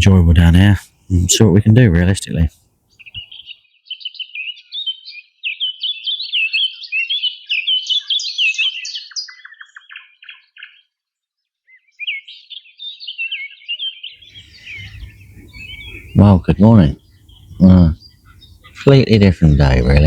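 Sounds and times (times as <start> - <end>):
songbird warbling: 14.3 - 20.0.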